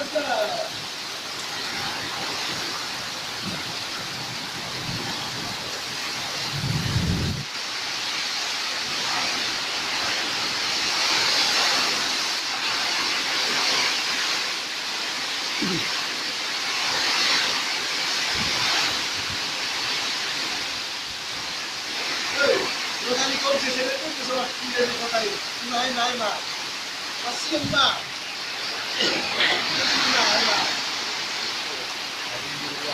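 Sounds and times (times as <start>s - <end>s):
heavy rain pouring: 0.0s - 32.9s
low rumble: 6.5s - 7.4s.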